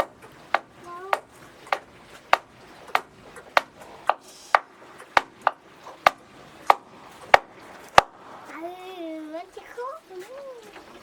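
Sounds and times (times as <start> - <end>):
sharp knocks: 0.0 - 8.2.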